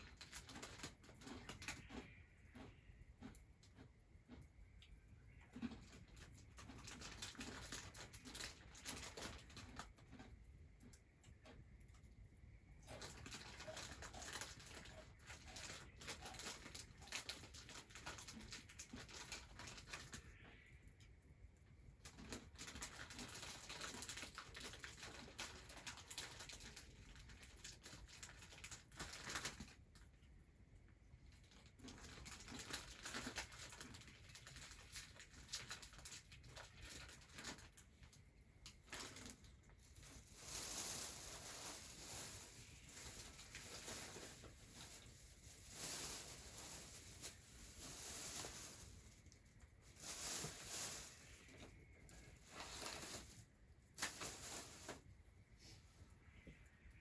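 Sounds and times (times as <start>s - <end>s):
faint clicks and pattering: 0.0s - 55.5s.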